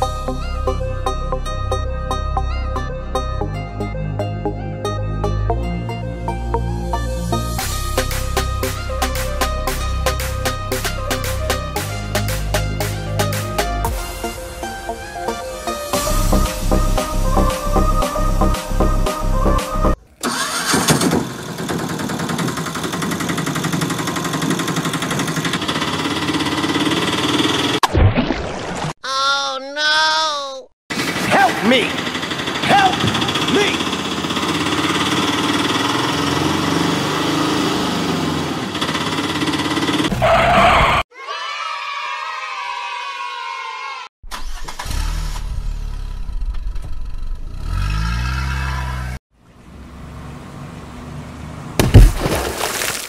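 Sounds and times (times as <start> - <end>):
small engine puttering: 20.0 - 27.8, 30.9 - 40.2.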